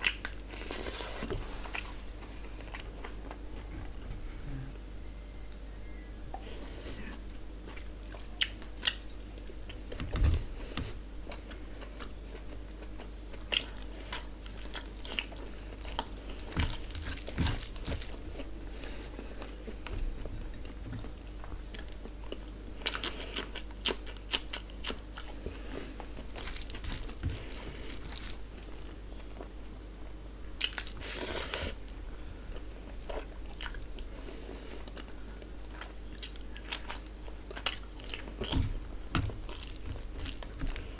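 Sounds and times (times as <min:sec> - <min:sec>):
chewing and mouth smacks: 0:20.6 - 0:25.4, 0:32.5 - 0:34.1, 0:34.8 - 0:40.9.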